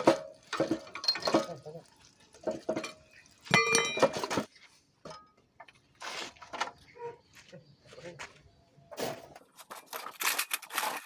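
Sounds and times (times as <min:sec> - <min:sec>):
metal tools clinking: 0:00.4 - 0:01.7, 0:02.7 - 0:04.5
ringing metallic clink: 0:03.5 - 0:04.0.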